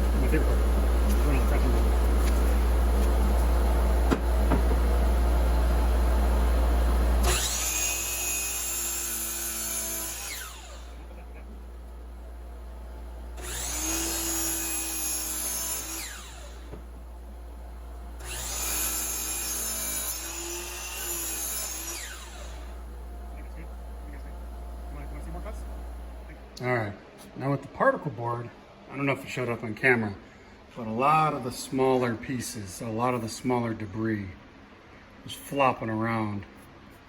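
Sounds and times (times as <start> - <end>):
miter saw cutting: 7.2 - 11.5, 13.4 - 16.9, 18.2 - 23.6.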